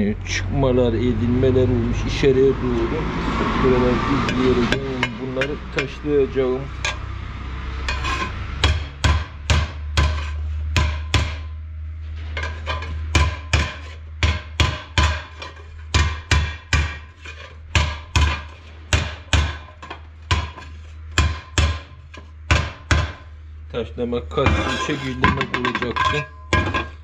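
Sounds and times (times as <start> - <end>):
hammer striking metal: 4.1 - 6.0, 6.7 - 7.1, 7.8 - 11.6, 12.4 - 17.1, 17.7 - 23.3, 24.4 - 27.0.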